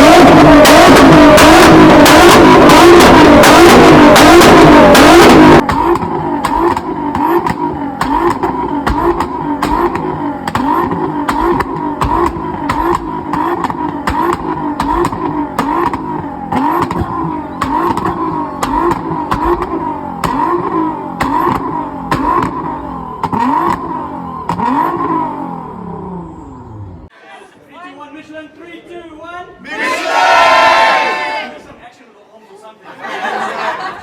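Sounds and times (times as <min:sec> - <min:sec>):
car engine revving: 0:00.0 - 0:27.1
sharp cracks: 0:00.6 - 0:22.6.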